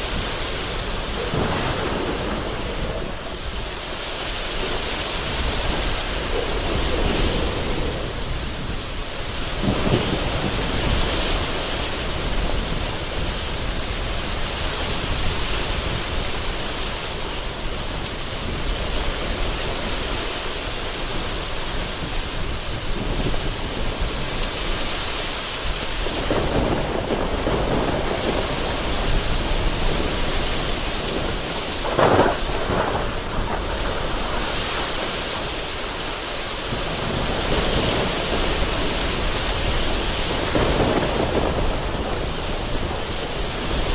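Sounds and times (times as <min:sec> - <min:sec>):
sharp thunder crack: 0:00.0 - 0:08.7, 0:26.0 - 0:36.0, 0:36.7 - 0:43.9
thunder rumbling: 0:00.0 - 0:24.4, 0:25.6 - 0:43.9
heavy rain falling: 0:00.0 - 0:43.9.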